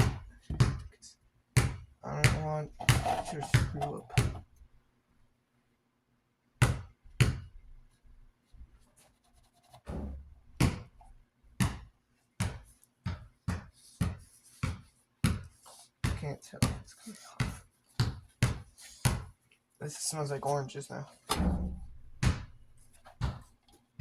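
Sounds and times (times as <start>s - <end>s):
rag scrubbing strokes: 2.7s - 4.4s.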